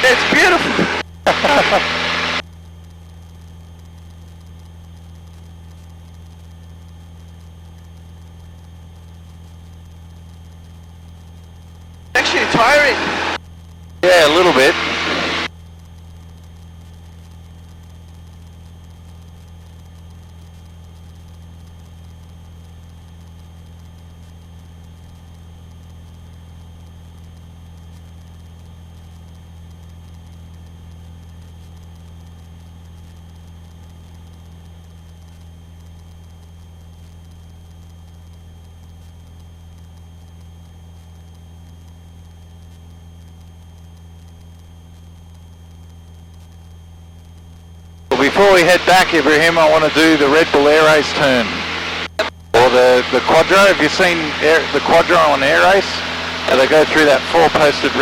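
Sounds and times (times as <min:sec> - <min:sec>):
aircraft engine droning: 0:00.0 - 0:02.4, 0:12.2 - 0:13.4, 0:14.0 - 0:15.5, 0:48.1 - 0:58.0
faint high whine: 0:00.0 - 0:02.8, 0:03.4 - 0:58.0.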